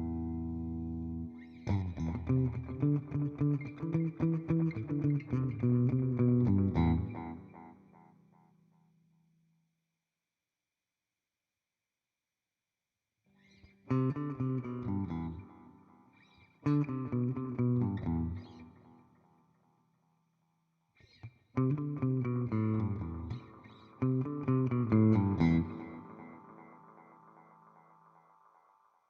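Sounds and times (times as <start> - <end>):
clean electric guitar with delay: 0.0 - 8.2, 21.6 - 29.0.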